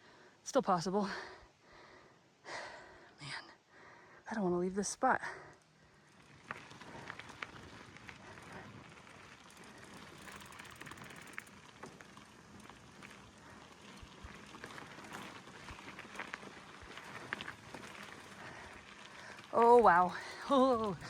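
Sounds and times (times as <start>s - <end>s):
bike tyres crunching on gravel: 5.6s - 21.0s.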